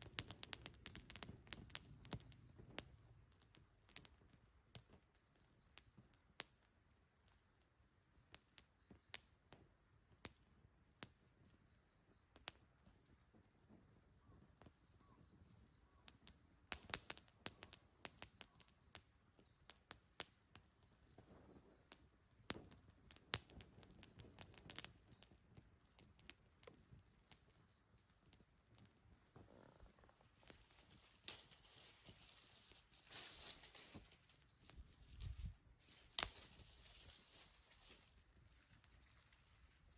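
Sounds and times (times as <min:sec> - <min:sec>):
insects trilling: 0:00.0 - 0:39.9
sharp crackles and pops: 0:00.0 - 0:39.9
rustling hiss: 0:29.9 - 0:39.9.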